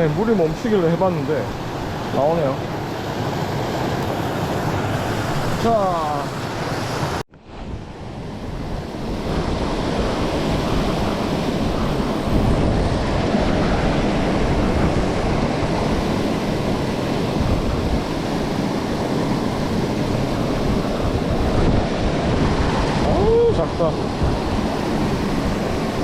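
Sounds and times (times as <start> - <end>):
small waterfall rushing: 3.8 - 7.3.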